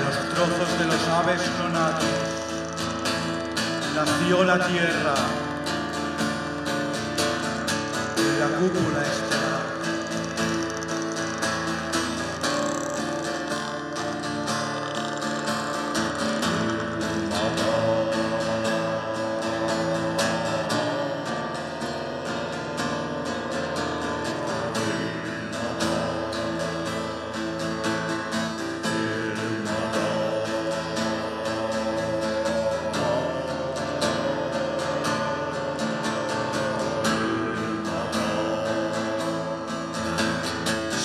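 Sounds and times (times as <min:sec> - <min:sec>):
acoustic guitar strumming: 0:00.0 - 0:41.0.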